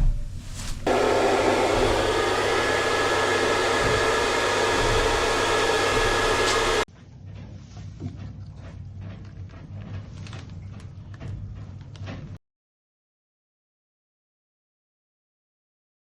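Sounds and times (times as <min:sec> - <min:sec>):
electric tool running: 0:00.9 - 0:06.9.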